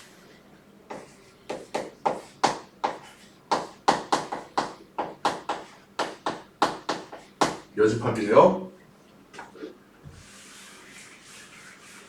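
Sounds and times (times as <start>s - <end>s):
chalk tapping on board: 0.9s - 7.7s.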